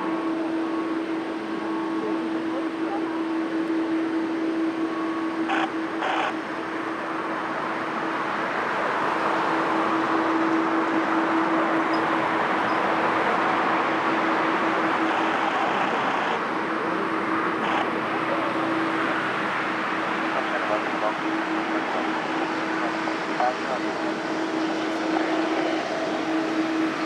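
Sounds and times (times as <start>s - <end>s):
constant low hum: 0.0s - 27.0s
jet airliner engine rushing: 7.2s - 27.0s.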